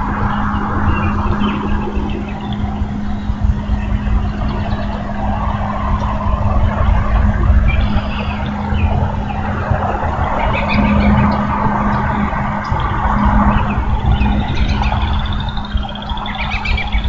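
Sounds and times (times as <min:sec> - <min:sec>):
electrical hum: 0:00.0 - 0:17.0
low rumbling noise: 0:00.0 - 0:17.0
bird chirps: 0:07.6 - 0:17.0.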